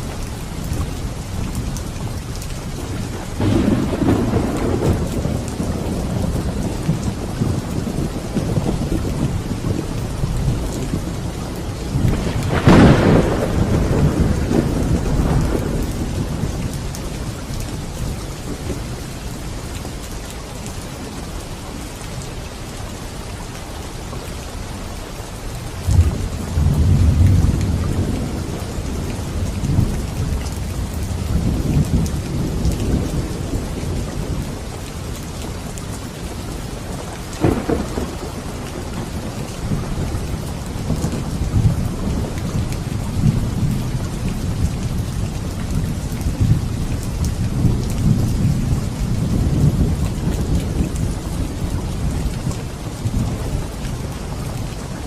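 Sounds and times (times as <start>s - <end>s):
steady rain: 0.0s - 55.0s
thunder cracks and rumbling: 3.0s - 17.7s, 25.8s - 34.6s, 36.8s - 53.4s.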